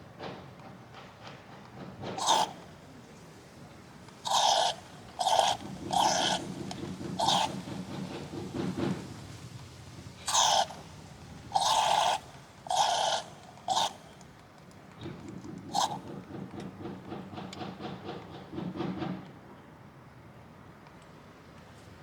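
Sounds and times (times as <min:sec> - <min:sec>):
engine low rhythmic pulsing: 0:01.8 - 0:14.2
water pump squealing: 0:02.2 - 0:02.7, 0:04.2 - 0:08.7, 0:10.2 - 0:14.1, 0:15.7 - 0:16.0.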